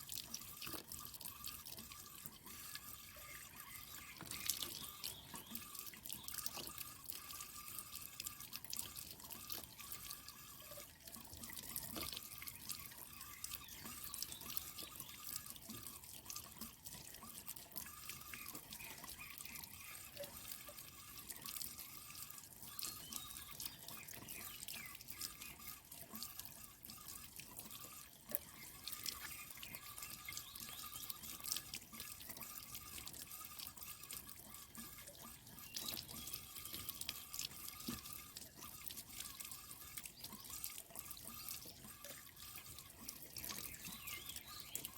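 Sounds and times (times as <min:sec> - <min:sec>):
water dripping and trickling: 0:00.0 - 0:44.9.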